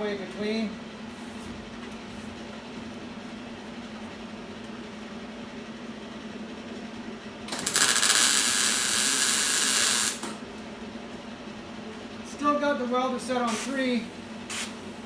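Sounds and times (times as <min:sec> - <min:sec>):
steady low hum: 0:00.0 - 0:15.0
welder crackling hiss: 0:07.5 - 0:10.4, 0:13.5 - 0:14.9.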